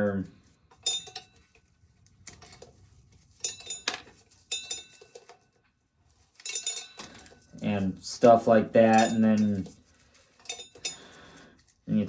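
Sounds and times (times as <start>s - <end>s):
faint ringing: 0.0s - 1.6s, 3.3s - 5.5s, 6.2s - 9.8s, 10.4s - 11.4s.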